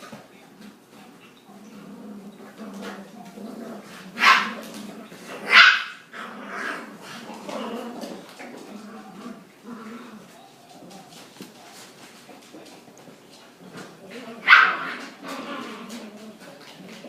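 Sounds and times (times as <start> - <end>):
puppies growling: 0.6 - 17.0
sharp puppy barks: 4.2 - 4.5, 5.5 - 6.0, 14.4 - 15.0.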